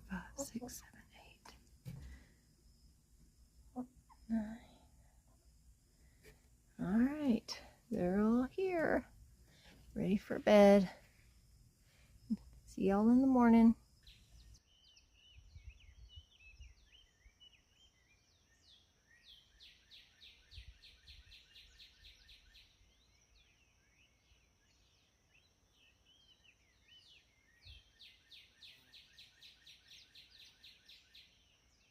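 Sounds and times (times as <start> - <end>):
bird chirping: 8.0 - 31.9.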